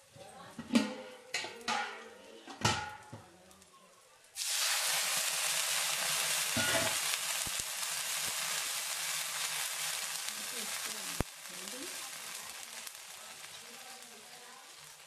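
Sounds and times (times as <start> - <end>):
paste sizzling in hot oil: 4.4 - 15.0.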